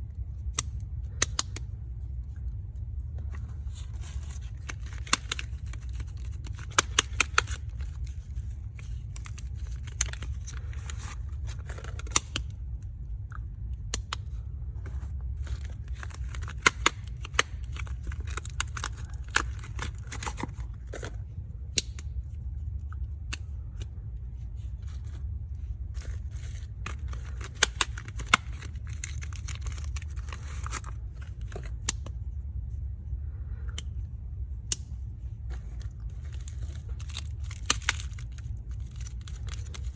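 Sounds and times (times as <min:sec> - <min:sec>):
steady low hum: 0:00.0 - 0:39.9
soap wrapper crinkling and tearing: 0:03.2 - 0:12.6, 0:15.0 - 0:21.2, 0:24.8 - 0:32.1, 0:35.5 - 0:39.9.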